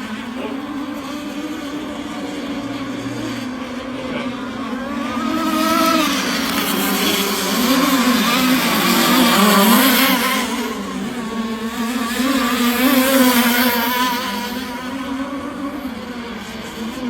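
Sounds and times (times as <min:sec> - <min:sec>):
racing boat two-stroke engines: 0:00.0 - 0:17.0.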